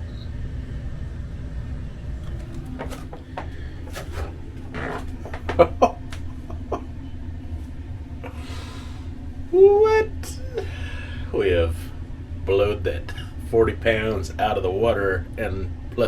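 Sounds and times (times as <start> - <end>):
room heater humming: 0.0 - 16.0
clicks and knocks: 2.2 - 6.3.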